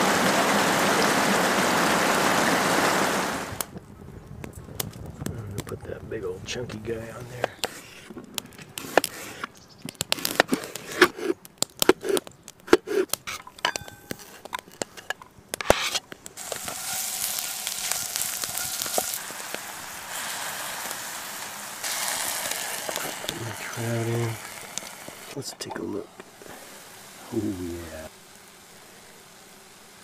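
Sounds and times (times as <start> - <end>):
spatula stirring in pan: 15.6 - 25.4
food sizzling in oil: 15.8 - 25.4.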